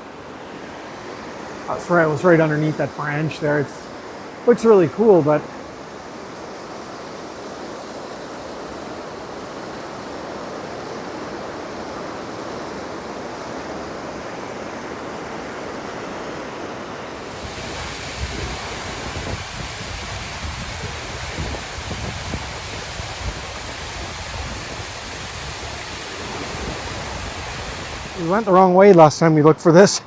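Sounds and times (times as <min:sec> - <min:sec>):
waterfall rushing: 0:00.0 - 0:29.2
wind buffeting microphone: 0:17.2 - 0:28.6.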